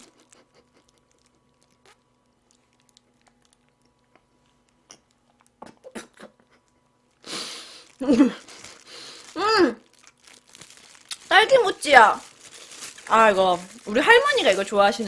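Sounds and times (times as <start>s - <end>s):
soft chewing: 0.0s - 6.8s
wet mouth clicks: 1.8s - 2.1s, 4.8s - 6.6s.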